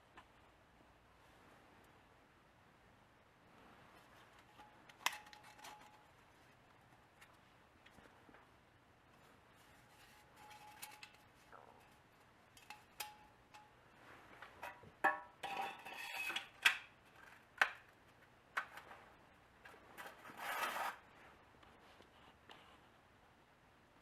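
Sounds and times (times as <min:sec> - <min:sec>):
metal cans clinking: 0:14.6 - 0:16.9
metal scraping against metal: 0:15.4 - 0:16.6, 0:20.0 - 0:21.0.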